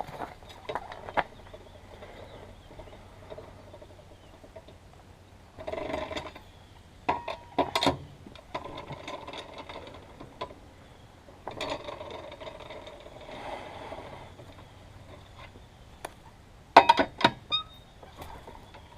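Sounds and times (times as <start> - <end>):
metal clicks and knocks: 16.8 - 17.6.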